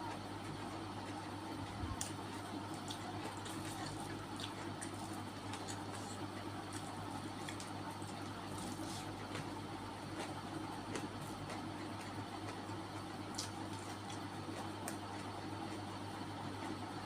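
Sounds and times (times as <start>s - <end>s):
person chewing: 2.7s - 15.3s.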